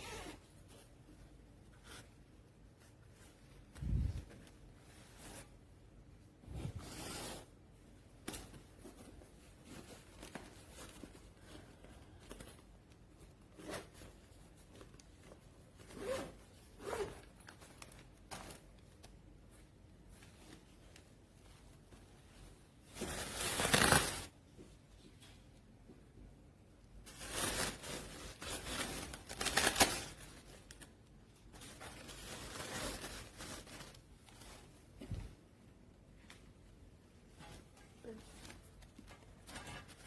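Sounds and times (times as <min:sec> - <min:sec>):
bag zipping and rustling: 0:15.9 - 0:17.2.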